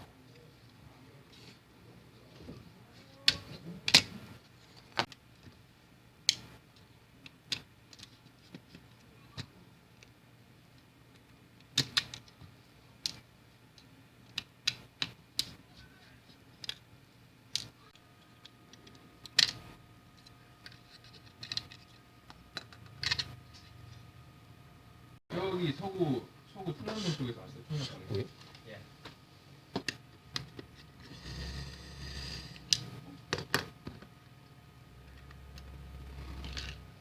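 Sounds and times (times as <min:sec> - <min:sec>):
clicks of small plastic parts: 0:16.6 - 0:16.8, 0:17.5 - 0:19.6, 0:20.2 - 0:23.4.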